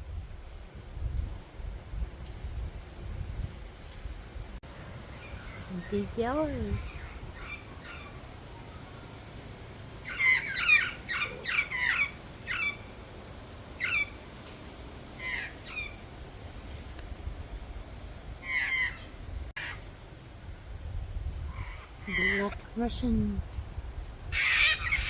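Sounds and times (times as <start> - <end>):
bird calling with falling notes: 10.0 - 13.0, 13.8 - 14.2, 15.2 - 16.0, 18.4 - 19.8, 21.5 - 22.6.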